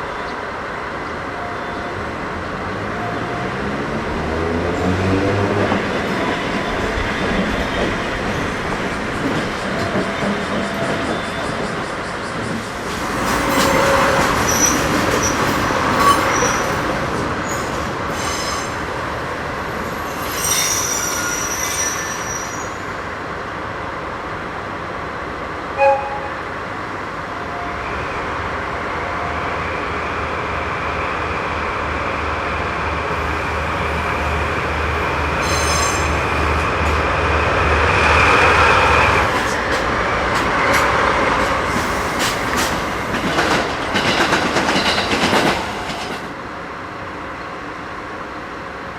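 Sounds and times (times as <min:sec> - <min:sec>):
low rhythmic pulsing of train: 0:00.0 - 0:48.9
train wheels squealing: 0:09.5 - 0:18.8, 0:19.9 - 0:23.0, 0:35.3 - 0:36.6.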